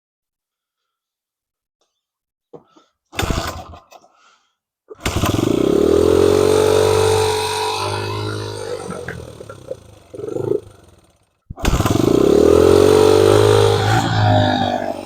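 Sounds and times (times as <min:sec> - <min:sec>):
motorcycle engine starting and racing: 0:03.2 - 0:03.9, 0:05.0 - 0:15.0.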